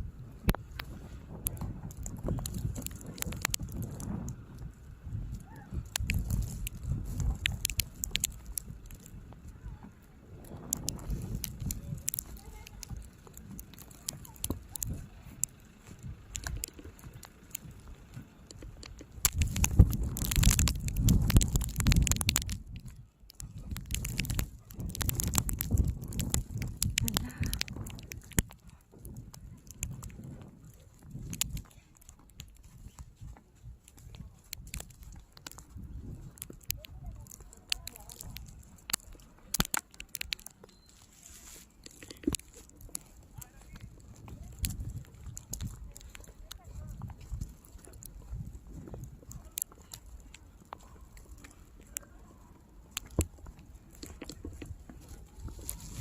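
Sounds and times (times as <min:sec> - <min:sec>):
wind rumble on microphone: 0:00.0 - 0:40.6, 0:41.4 - 0:56.0
footsteps crunching in snow: 0:53.1 - 0:56.0.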